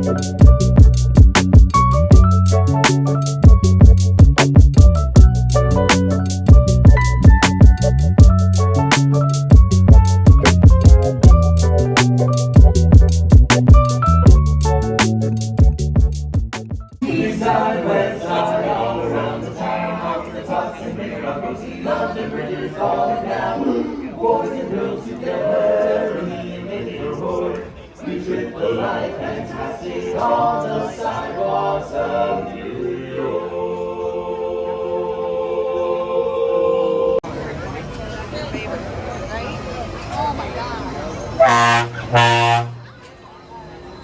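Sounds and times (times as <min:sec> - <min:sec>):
voices singing in harmony: 0:17.0 - 0:37.2.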